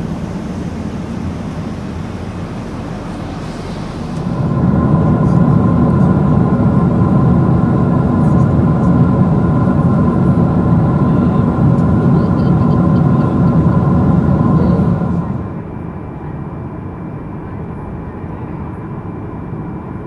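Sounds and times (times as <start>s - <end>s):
constant high whine: 0.0s - 15.9s
aircraft engines rumbling: 0.0s - 16.7s.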